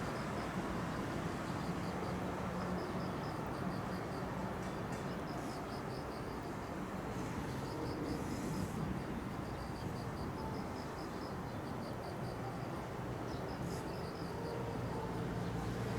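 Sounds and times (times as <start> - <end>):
insect chirping: 7.5 - 15.9.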